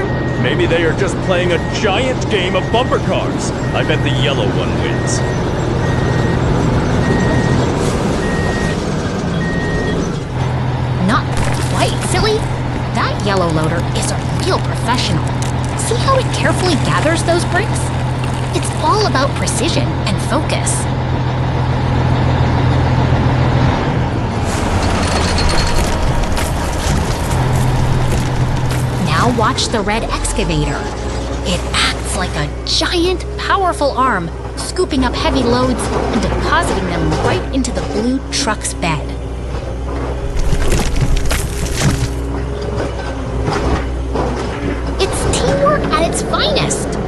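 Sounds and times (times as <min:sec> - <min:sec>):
reversing alarm beeping: 0:00.0 - 0:12.5
machine engine hum: 0:00.0 - 0:47.0
engine clattering and knocking: 0:08.2 - 0:23.7.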